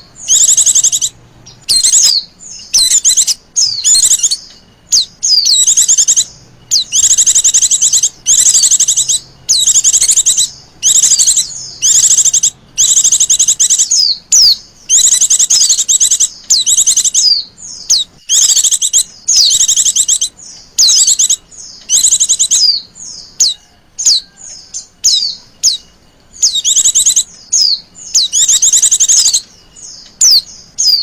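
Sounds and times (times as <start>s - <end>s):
bird trilled chirps: 0.0s - 31.0s.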